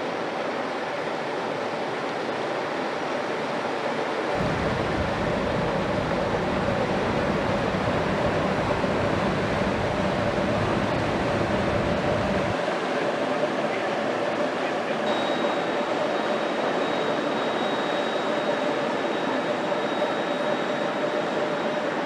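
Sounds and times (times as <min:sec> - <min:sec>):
low rumble: 0:04.4 - 0:12.6
ship diesel engine running: 0:04.4 - 0:12.6.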